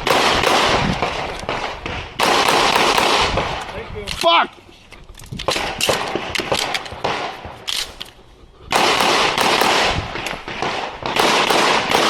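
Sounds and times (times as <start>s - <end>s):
pistol shots cracking: 0.0s - 3.7s, 5.5s - 8.1s, 8.7s - 12.0s.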